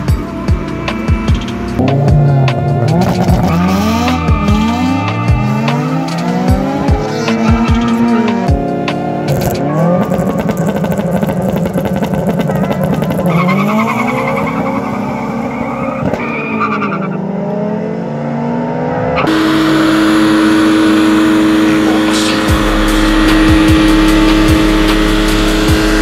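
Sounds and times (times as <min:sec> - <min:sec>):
car engine at high revs: 0:00.0 - 0:26.0
car engines revving: 0:00.0 - 0:26.0
spinning tyres hissing: 0:19.2 - 0:26.0.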